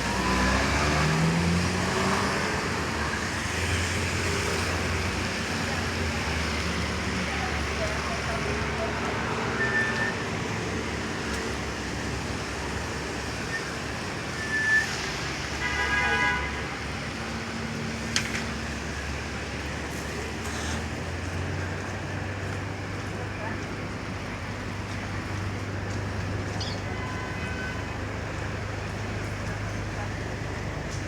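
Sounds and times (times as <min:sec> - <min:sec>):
city street traffic: 0:00.0 - 0:31.0
car horn: 0:15.6 - 0:16.7, 0:26.9 - 0:27.9.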